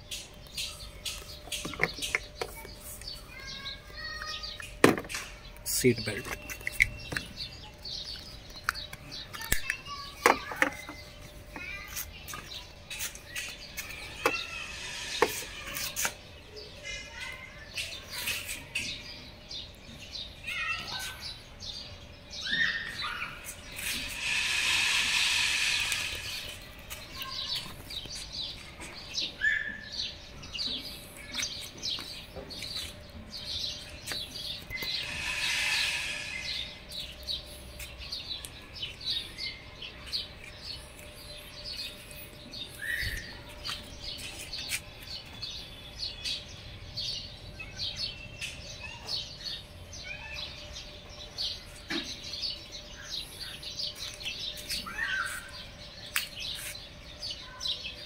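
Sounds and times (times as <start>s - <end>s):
small birds chirping: 0.0s - 58.0s
rushing noise: 23.7s - 27.0s, 34.8s - 37.0s.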